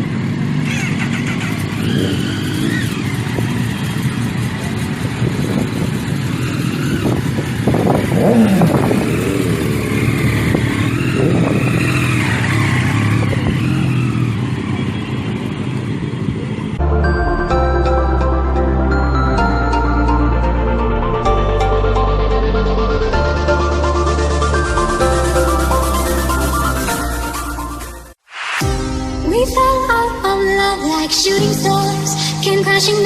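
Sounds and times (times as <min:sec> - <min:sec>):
motorcycle engines revving: 0:00.0 - 0:17.2
car engines in traffic: 0:00.0 - 0:28.1.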